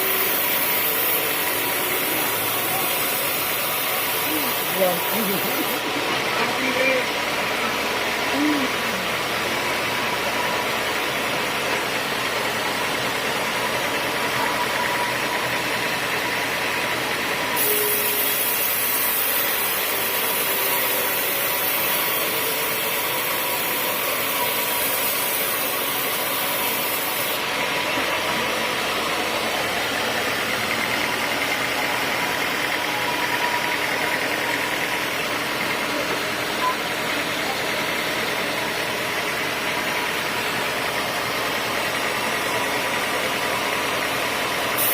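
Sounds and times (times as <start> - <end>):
bright high hiss: 0.0 - 6.0, 17.6 - 35.6
sawmill machinery running: 0.0 - 44.9.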